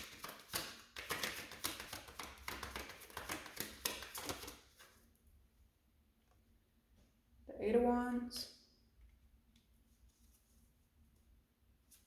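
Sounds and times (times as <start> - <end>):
cards being shuffled: 0.0 - 5.0.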